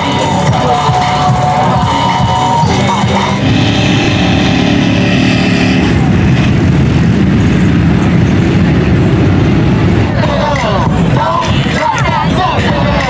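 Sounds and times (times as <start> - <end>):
music: 0.0 - 4.8, 9.9 - 13.0
truck engine running at high revs: 0.0 - 13.0.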